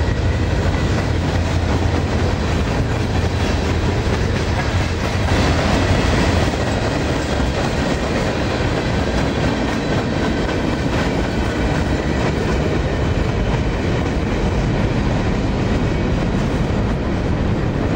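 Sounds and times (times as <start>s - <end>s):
freight train rumbling past: 0.0s - 17.9s
steel wheels clattering on rails: 0.0s - 17.9s.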